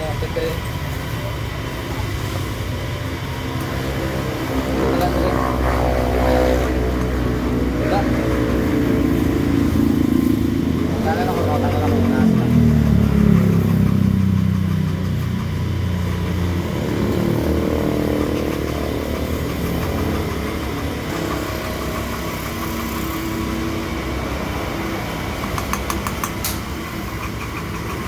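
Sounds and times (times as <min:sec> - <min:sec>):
engine running: 0:00.0 - 0:28.0
sharp clicks: 0:25.3 - 0:28.0.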